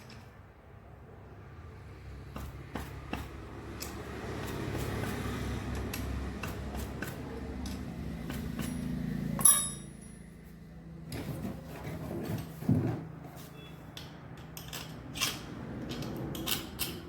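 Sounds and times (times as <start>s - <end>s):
tool striking metal: 8.3s - 10.4s.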